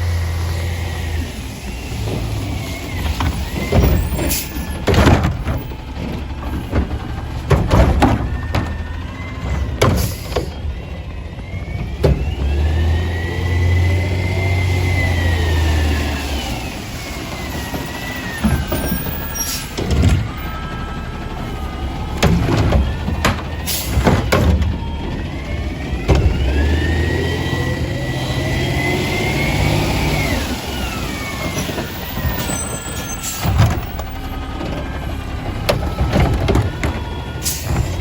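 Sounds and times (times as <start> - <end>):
hydraulic whine: 0.0 - 38.0
truck engine: 0.0 - 38.0
metal clanks and bangs: 2.1 - 11.0, 17.2 - 27.2, 31.2 - 38.0.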